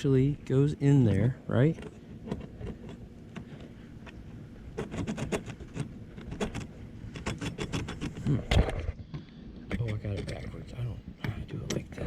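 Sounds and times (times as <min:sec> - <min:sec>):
seat fastener clicking and rattling: 0:04.8 - 0:08.2.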